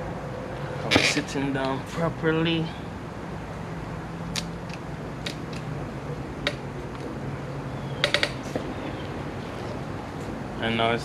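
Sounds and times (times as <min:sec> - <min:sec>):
steady low hum: 0:00.0 - 0:11.0
sharp clicks of parts handled: 0:04.3 - 0:05.7.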